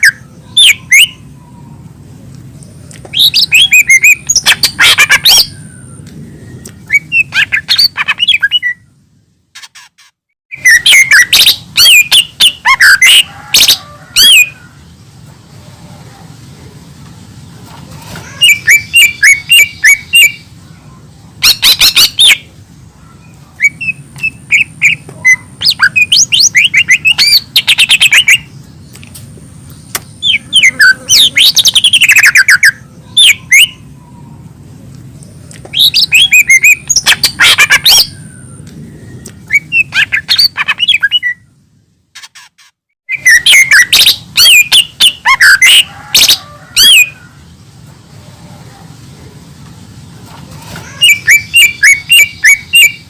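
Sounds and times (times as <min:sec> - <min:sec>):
bird singing chirps and whistles: 0:00.0 - 0:01.7, 0:03.1 - 0:09.0, 0:10.5 - 0:14.6, 0:18.4 - 0:20.5, 0:21.4 - 0:22.5, 0:23.2 - 0:28.5, 0:29.9 - 0:33.8, 0:35.7 - 0:41.5, 0:43.1 - 0:47.2, 0:51.0 - 0:53.0.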